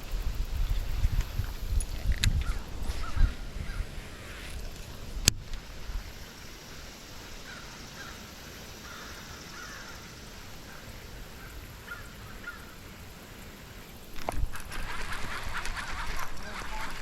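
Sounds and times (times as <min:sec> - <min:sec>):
faint bird calls: 0:02.4 - 0:04.6, 0:07.2 - 0:13.2.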